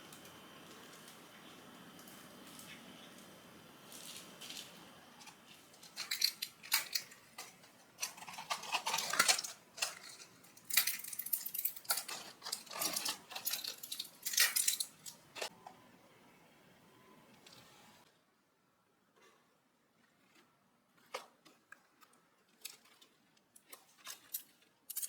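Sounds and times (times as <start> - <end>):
utensils and dishes clinking: 5.2 - 15.5.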